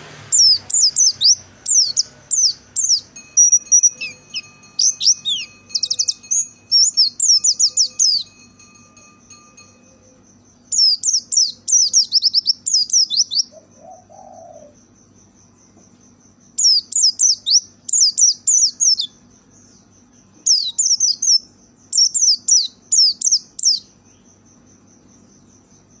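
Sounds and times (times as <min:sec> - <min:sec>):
bird chirping: 0:00.0 - 0:24.3
high pulsing tone: 0:00.2 - 0:10.0.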